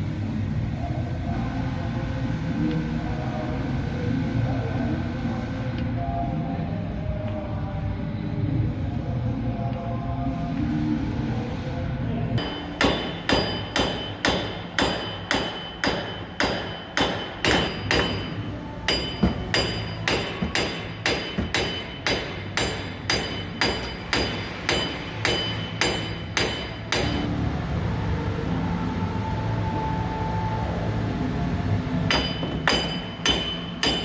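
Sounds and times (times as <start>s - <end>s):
hammer striking metal: 12.4s - 27.3s, 32.1s - 34.0s.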